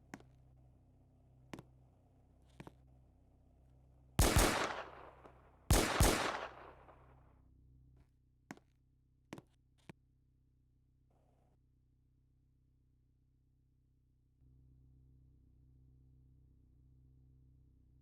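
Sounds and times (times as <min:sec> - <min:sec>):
loud double bangs: 0:04.2 - 0:07.0
long echo: 0:04.2 - 0:07.1.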